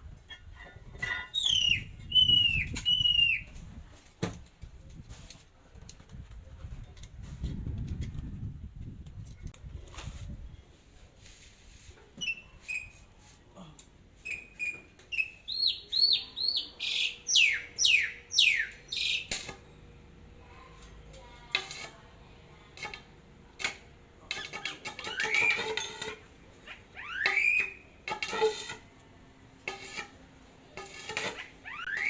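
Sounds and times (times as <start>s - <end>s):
bird chirping and whistling: 1.0s - 3.6s, 12.2s - 13.0s, 14.2s - 19.3s, 27.0s - 27.8s, 31.7s - 32.0s.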